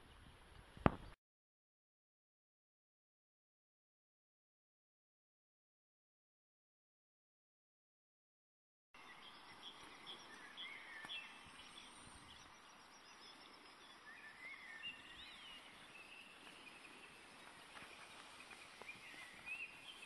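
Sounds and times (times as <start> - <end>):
birds chirping and warbling: 9.0 - 20.0.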